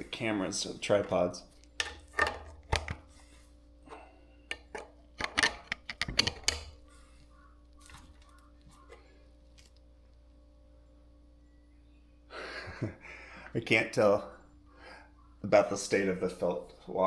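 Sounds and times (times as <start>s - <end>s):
metal parts clicking and knocking: 1.8s - 3.0s, 4.5s - 6.8s.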